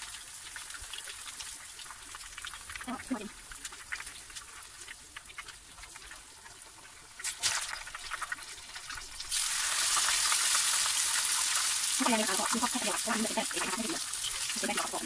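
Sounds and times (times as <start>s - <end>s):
loud steady sizzle: 0.0s - 15.0s
tempura frying in oil: 0.0s - 15.0s.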